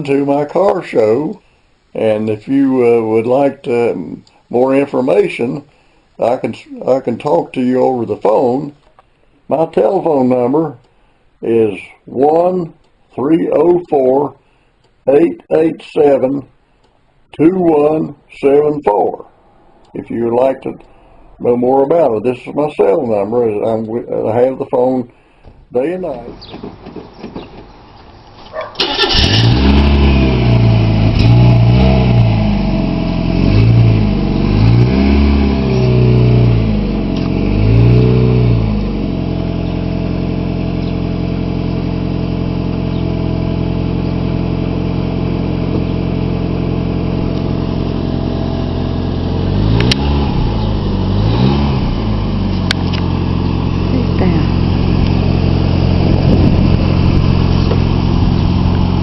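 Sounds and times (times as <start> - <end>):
car engine revving and idling: 29.0 - 59.0.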